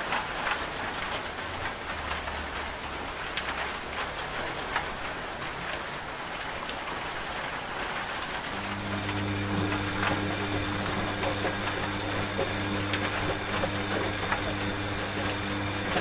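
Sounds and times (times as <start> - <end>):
rain drops striking a surface: 0.0 - 16.0
washing machine hum: 8.4 - 16.0.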